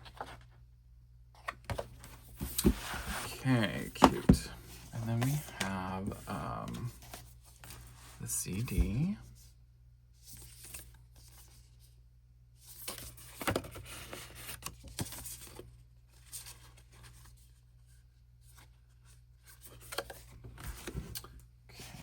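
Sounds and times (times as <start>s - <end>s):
paper and plastic rustling: 1.4s - 9.1s.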